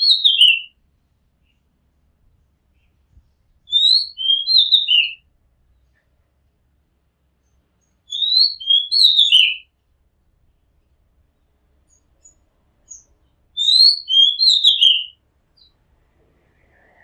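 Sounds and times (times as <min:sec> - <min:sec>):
bird singing whistled notes: 0:00.0 - 0:00.7, 0:03.7 - 0:05.2, 0:08.1 - 0:09.7, 0:11.9 - 0:15.8.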